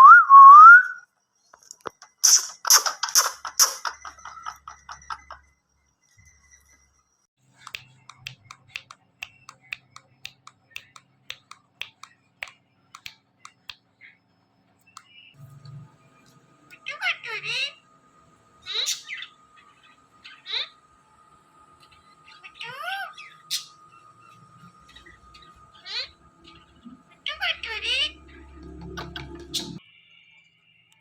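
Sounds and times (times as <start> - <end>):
parakeet clicks and chirps: 1.6 - 5.4, 7.6 - 14.2.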